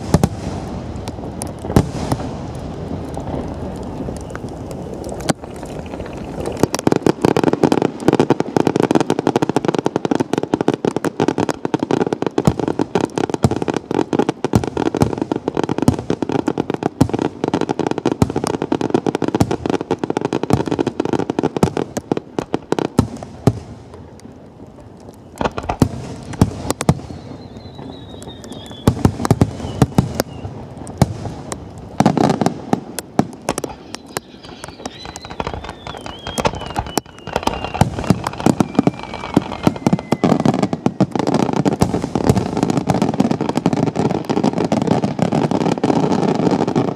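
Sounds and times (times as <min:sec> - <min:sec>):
electronic firecrackers cracking: 0:00.0 - 0:09.6, 0:20.6 - 0:45.0.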